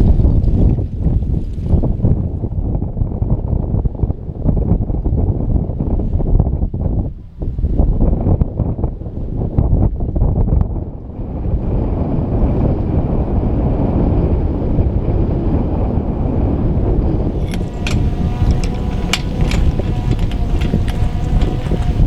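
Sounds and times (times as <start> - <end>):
wind buffeting microphone: 0.0 - 22.0
sharp clicks and cracks: 17.3 - 22.0.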